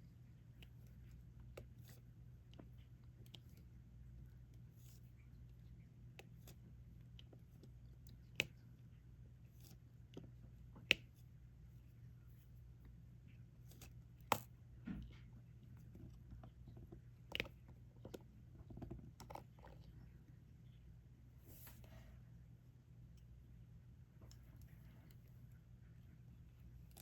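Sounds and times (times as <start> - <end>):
low steady hum: 0.0 - 27.0
small taps and scrapes: 13.6 - 20.1.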